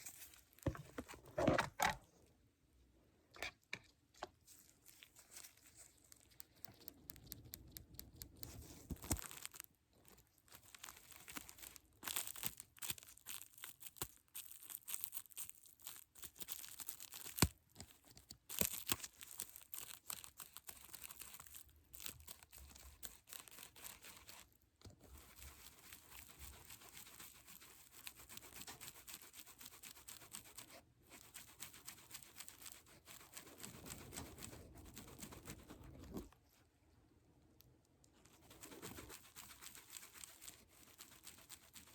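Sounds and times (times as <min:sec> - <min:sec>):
crinkling handling noise: 0:00.0 - 0:02.3, 0:03.3 - 0:26.9.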